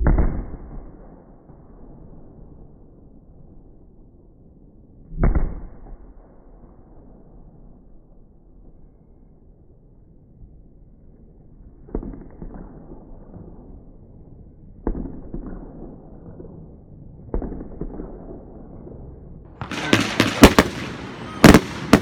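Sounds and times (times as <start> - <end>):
fireworks booming: 0.0 - 1.6, 19.6 - 22.0
fireworks crackling: 19.6 - 22.0
sharp loud bangs: 19.6 - 22.0.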